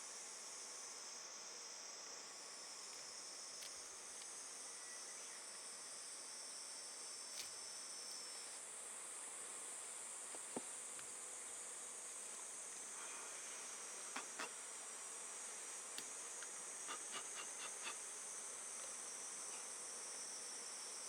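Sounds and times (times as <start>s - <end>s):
insects chirring: 0.2s - 21.0s.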